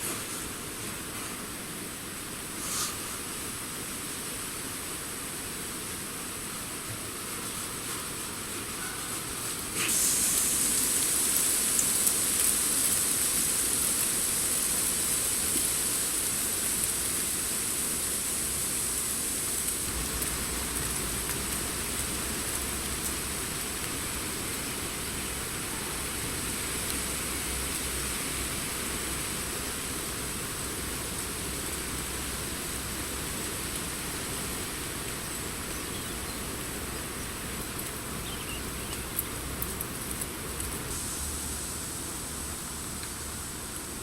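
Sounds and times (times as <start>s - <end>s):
wind through forest foliage: 0.0s - 44.0s
faint clicks: 38.9s - 40.8s.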